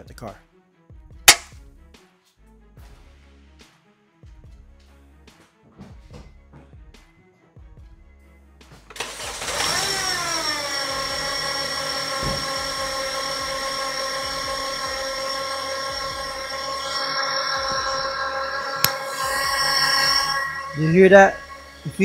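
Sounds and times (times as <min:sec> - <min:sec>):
belt squeal and whine: 0:09.0 - 0:22.0
car engine starting and revving: 0:09.0 - 0:22.0
engine idling: 0:09.0 - 0:22.0.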